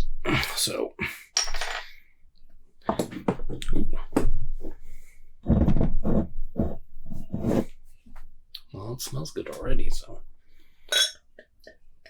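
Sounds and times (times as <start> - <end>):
bottle and glass clinking: 1.4 - 1.9, 10.9 - 11.2.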